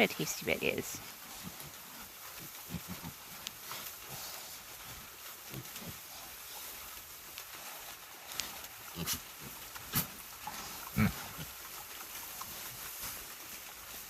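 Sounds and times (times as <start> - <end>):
pigs grunting: 2.4 - 3.3, 8.8 - 12.8.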